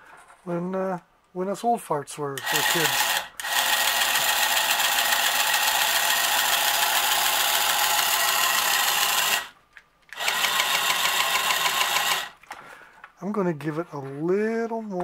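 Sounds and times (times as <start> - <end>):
toy motor and gears whirring: 2.4 - 9.5, 10.1 - 12.4.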